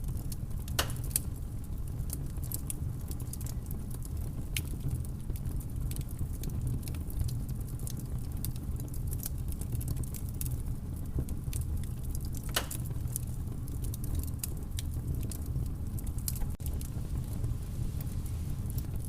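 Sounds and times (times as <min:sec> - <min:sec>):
campfire crackling: 0:00.0 - 0:19.0.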